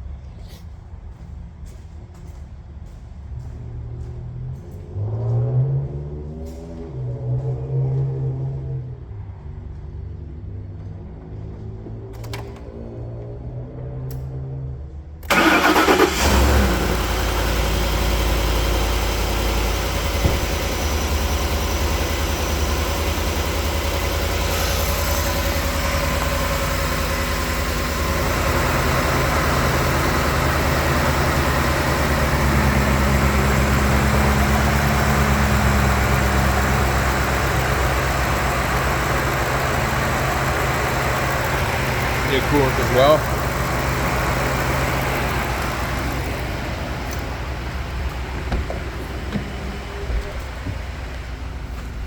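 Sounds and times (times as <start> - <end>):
car engine starting and idling: 11.4 - 52.0.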